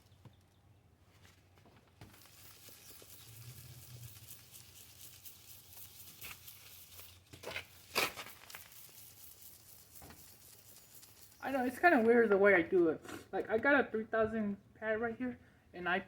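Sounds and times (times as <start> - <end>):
sharp sandpaper scrapes: 2.1 - 12.2
sandpaper rubbing on plastic: 2.2 - 12.2.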